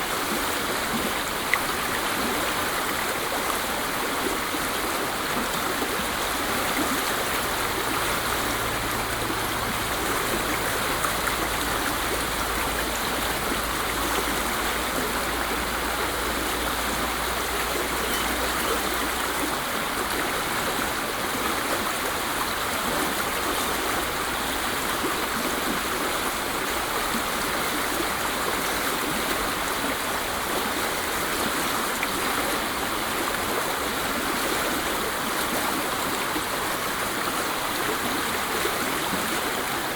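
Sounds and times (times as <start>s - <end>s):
waterfall rushing: 0.0s - 31.1s.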